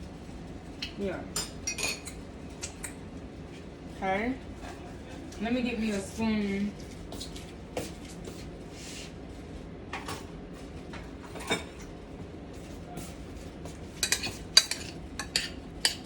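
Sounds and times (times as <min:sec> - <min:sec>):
spoon clinking on dish: 0:14.0 - 0:16.0.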